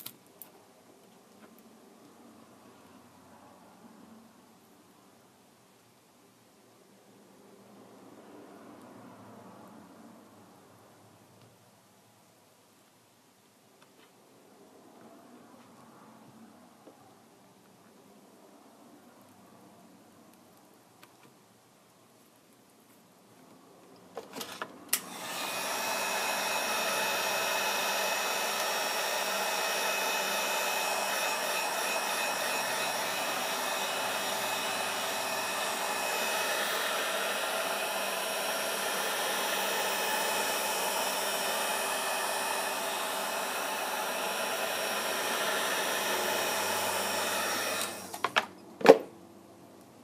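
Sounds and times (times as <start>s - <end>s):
heat gun blowing: 24.9s - 48.2s.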